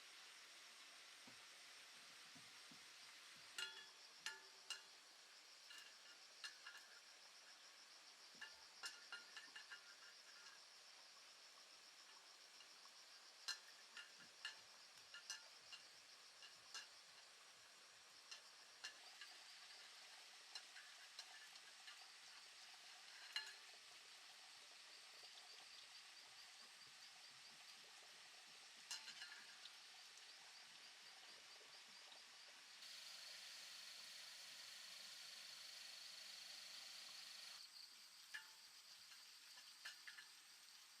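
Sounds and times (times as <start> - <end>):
insect chirring: 0.1 - 41.0
light clicks and clinks: 2.3 - 23.9, 28.8 - 30.8, 37.5 - 41.0.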